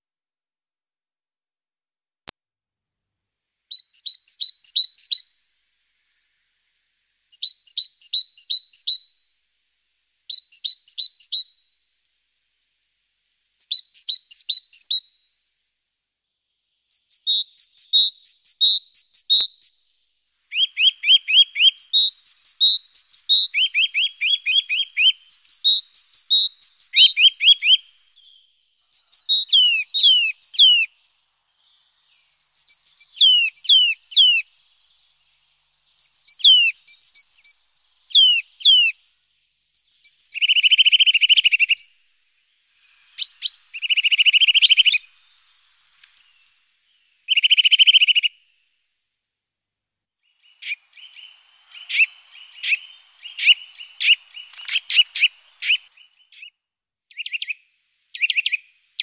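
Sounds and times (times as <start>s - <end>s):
small songbirds singing: 3.7s - 48.6s, 50.2s - 59.0s.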